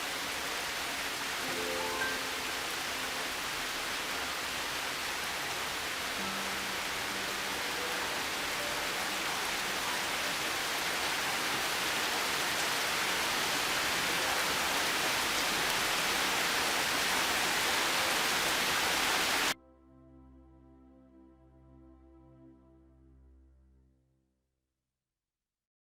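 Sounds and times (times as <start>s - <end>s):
heavy rain hiss: 0.0s - 19.6s
soft ambient music: 0.0s - 24.0s.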